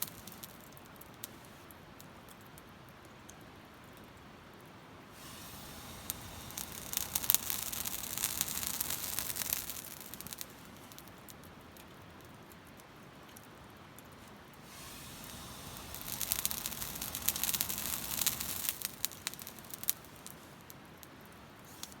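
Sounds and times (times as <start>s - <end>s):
charcoal crackling and popping: 0.0s - 2.6s, 5.1s - 12.9s, 14.0s - 22.0s
blowing air hiss: 5.1s - 11.0s, 14.6s - 20.7s.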